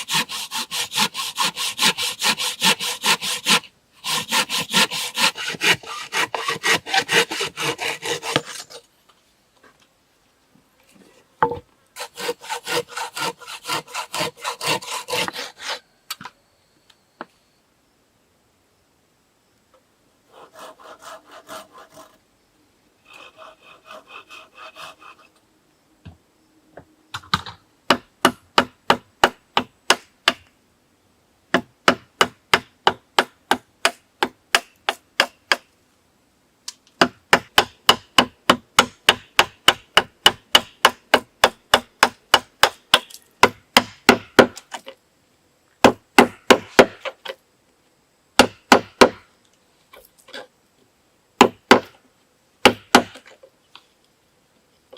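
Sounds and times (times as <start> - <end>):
hand tool scraping wood: 0.0 - 9.0, 10.9 - 15.9, 20.3 - 22.2, 23.0 - 25.4.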